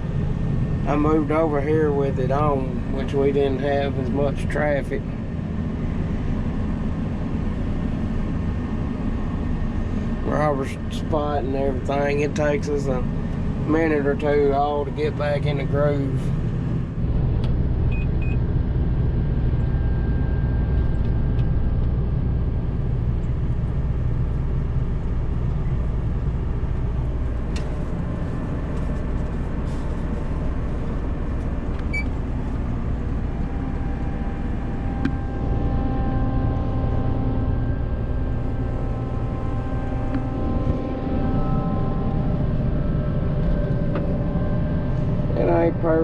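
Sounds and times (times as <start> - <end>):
diesel engine rumbling: 0.0 - 46.0
higher steady tones: 27.2 - 46.0.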